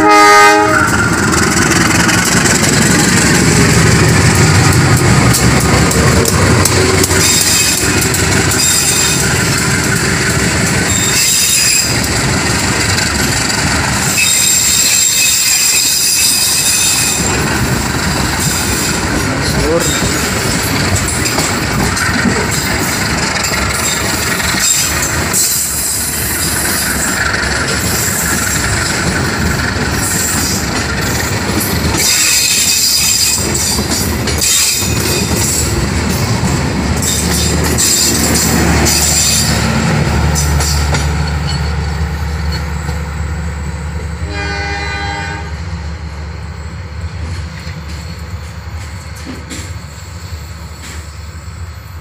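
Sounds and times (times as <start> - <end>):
train horn note: 0.0 - 1.2, 44.2 - 45.6
train wheels clattering and squealing: 0.8 - 43.8, 47.0 - 52.0.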